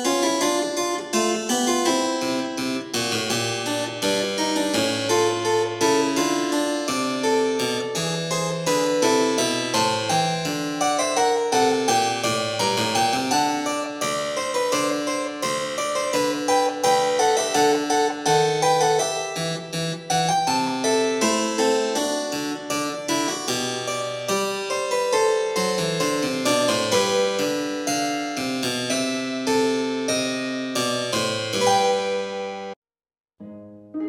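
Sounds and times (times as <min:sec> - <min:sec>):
harpsichord playing: 0:00.0 - 0:32.8.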